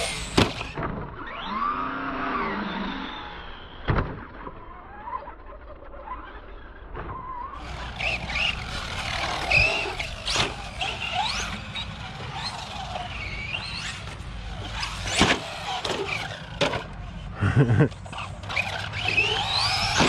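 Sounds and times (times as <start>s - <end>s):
rc truck hard knocks: 0.0s - 1.0s, 7.6s - 16.9s, 18.5s - 20.0s
electric motor whine: 0.0s - 3.5s, 7.6s - 17.1s, 18.4s - 20.0s.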